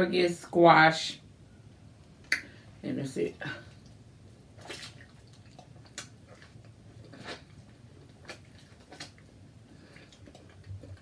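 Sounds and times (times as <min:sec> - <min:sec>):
mouth clicks and smacks chewing: 0:04.6 - 0:11.0.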